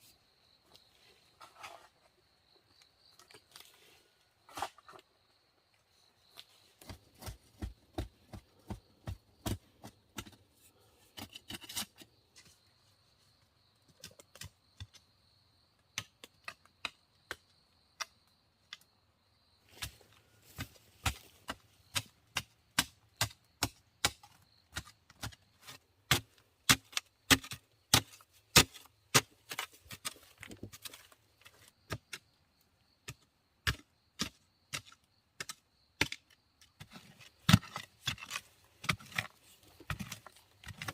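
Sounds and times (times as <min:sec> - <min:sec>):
wood chopping strikes: 0:19.7 - 0:25.4, 0:26.1 - 0:29.7.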